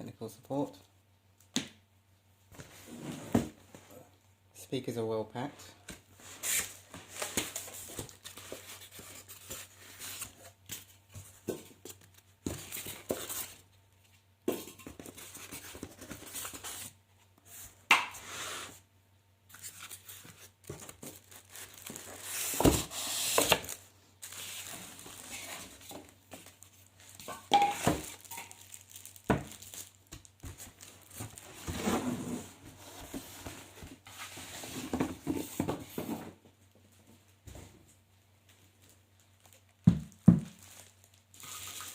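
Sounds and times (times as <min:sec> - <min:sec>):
wrapping rustling and tearing: 0:19.5 - 0:27.2, 0:27.9 - 0:31.8, 0:40.5 - 0:41.9.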